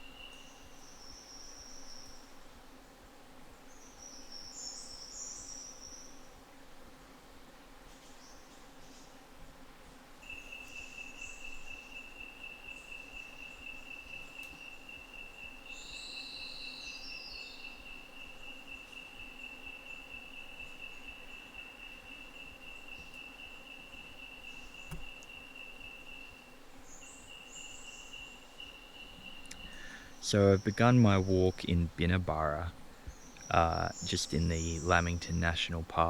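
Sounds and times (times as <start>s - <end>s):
insect trilling: 10.2s - 36.0s
descending bird call: 29.0s - 36.0s.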